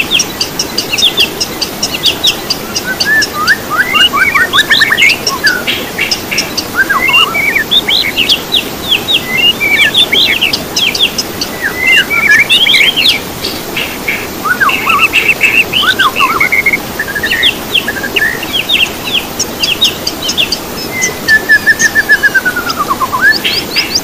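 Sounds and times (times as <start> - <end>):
songbirds chirping: 0.0 - 24.0
steady hiss: 0.0 - 24.0.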